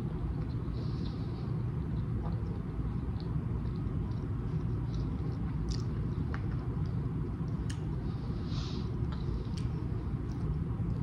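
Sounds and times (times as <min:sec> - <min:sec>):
wet mouth clicks chewing: 0:00.2 - 0:08.0.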